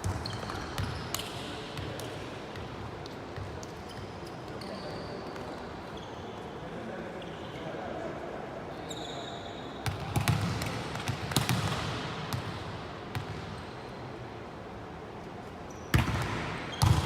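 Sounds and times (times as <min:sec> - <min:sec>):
sneakers squeaking on court floor: 0:00.0 - 0:01.9, 0:03.4 - 0:06.4, 0:08.8 - 0:12.5, 0:13.1 - 0:14.1, 0:15.7 - 0:17.0.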